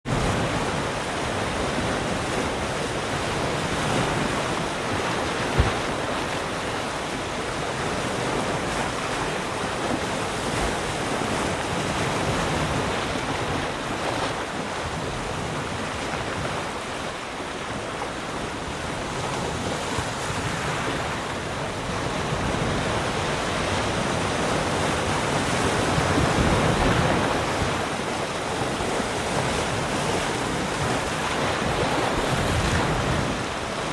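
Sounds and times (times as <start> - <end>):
small waves lapping on rock: 1.5 - 21.8.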